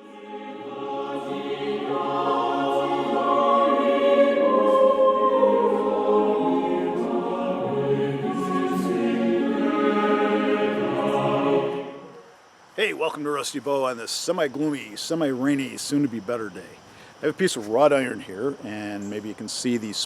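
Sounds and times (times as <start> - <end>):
choir singing sustained chords: 0.0 - 12.6.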